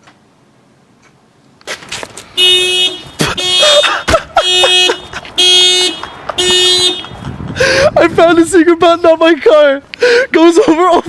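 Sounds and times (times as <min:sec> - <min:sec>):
car alarm blasts: 0:02.4 - 0:07.1.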